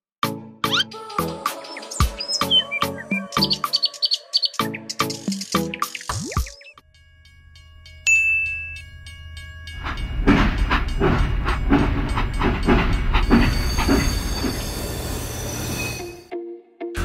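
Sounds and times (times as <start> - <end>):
toy locomotive chugging: 8.8 - 16.1.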